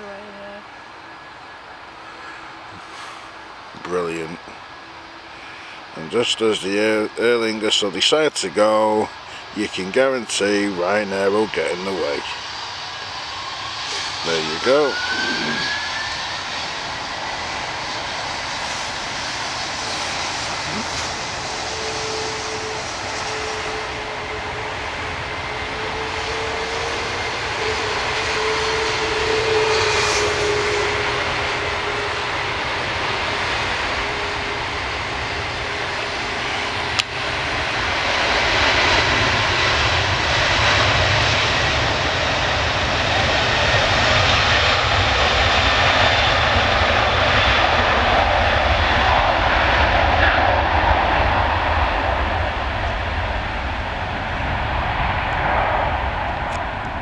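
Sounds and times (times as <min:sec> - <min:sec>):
jet engines roaring with whine: 0:00.0 - 0:57.0.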